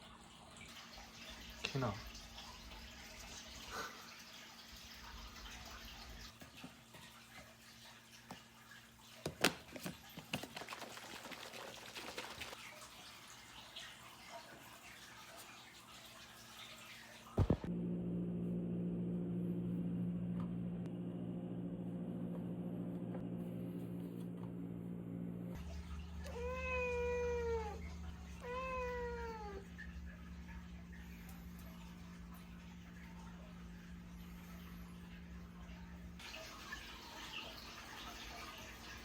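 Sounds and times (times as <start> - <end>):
electric hum: 17.4 - 26.2
cat meowing: 26.2 - 29.6.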